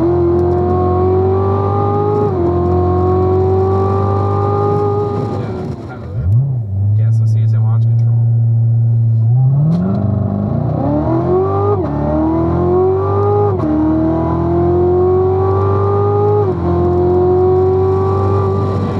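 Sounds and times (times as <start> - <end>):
car engine accelerating hard: 0.0 - 7.2, 8.2 - 18.9.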